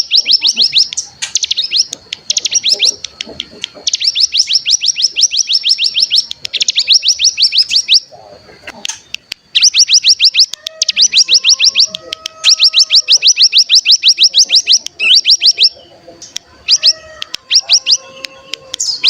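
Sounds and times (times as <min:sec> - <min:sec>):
songbird rattling trill: 0:00.0 - 0:08.2, 0:08.8 - 0:19.0.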